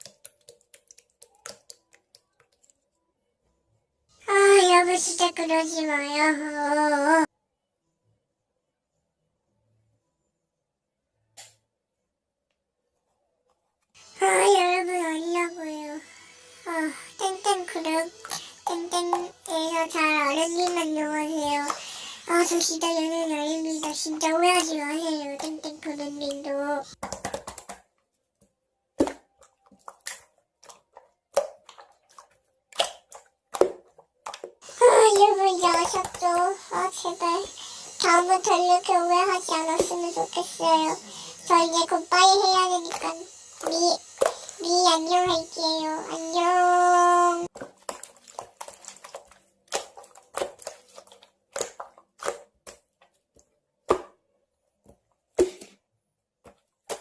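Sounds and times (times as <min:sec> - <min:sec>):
irregular taps and knocks: 0:27.0 - 0:27.9.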